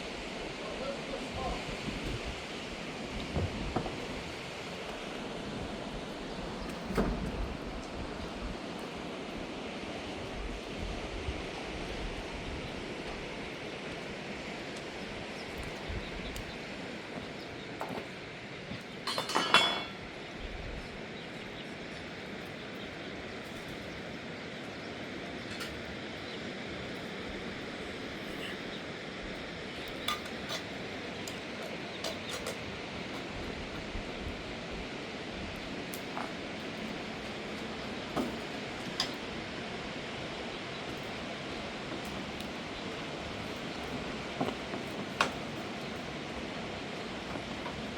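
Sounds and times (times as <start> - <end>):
steady rain: 0.0 - 18.9, 20.0 - 47.9.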